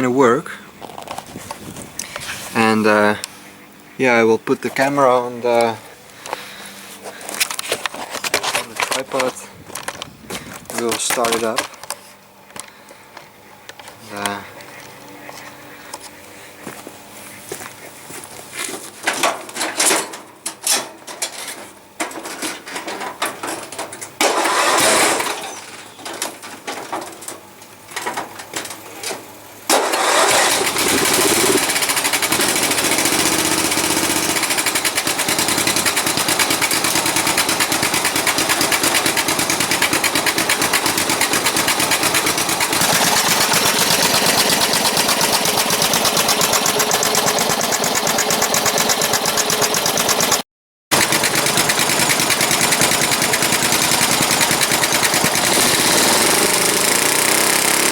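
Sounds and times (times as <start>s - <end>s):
lawn mower engine running: 0.0s - 57.9s
clattering handling noise: 6.3s - 12.8s, 18.4s - 24.4s, 25.1s - 29.3s.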